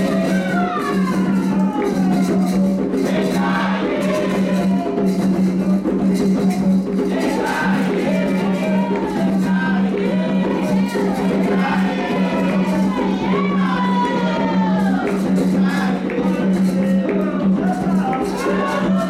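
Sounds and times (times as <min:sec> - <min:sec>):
hand drums beating fast rhythm: 0:00.0 - 0:19.0
voices singing a chant: 0:00.0 - 0:19.0.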